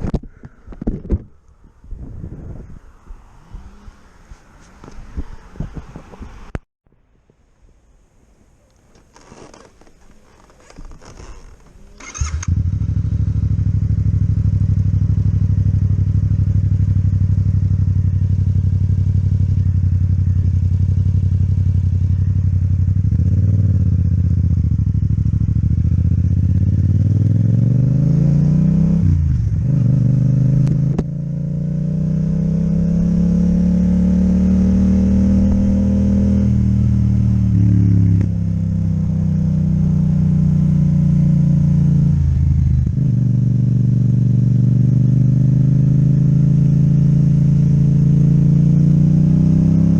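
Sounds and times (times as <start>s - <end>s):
motorcycle engine revving: 10.4s - 49.9s.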